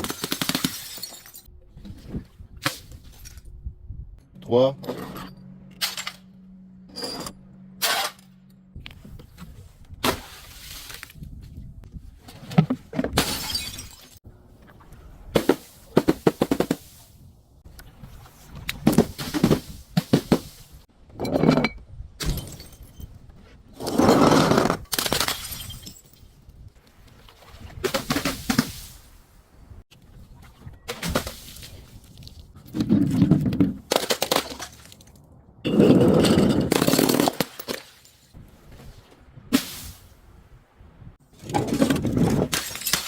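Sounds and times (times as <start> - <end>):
glass crushed and breaking: 0.1 - 1.5, 13.2 - 14.2, 24.9 - 26.2, 42.4 - 43.0.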